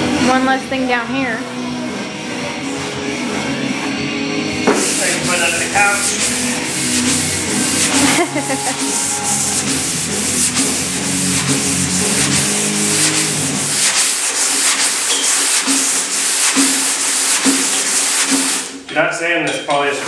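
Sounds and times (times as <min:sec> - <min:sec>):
background music: 0:00.0 - 0:14.1
sanding car bodywork: 0:04.7 - 0:18.8.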